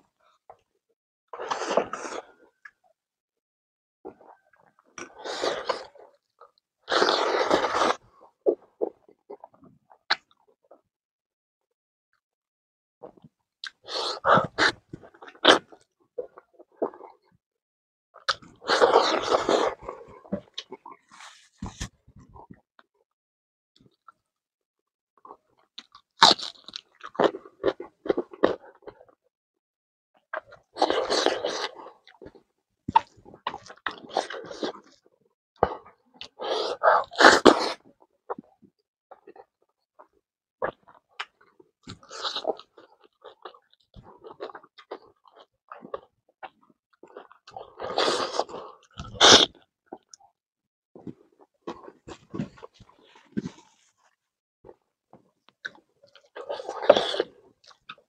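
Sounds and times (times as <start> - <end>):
person biting and chewing: 25.8 - 29.0, 30.3 - 32.2, 40.6 - 50.2, 55.6 - 58.0
wet chewing and lip-smacking: 51.0 - 58.0.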